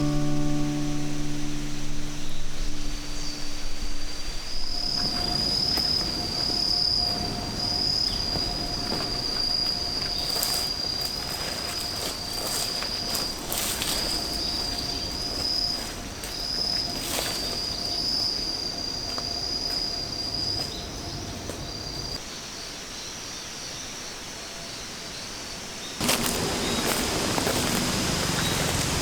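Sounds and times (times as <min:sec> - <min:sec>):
insect trilling: 0:00.0 - 0:22.2.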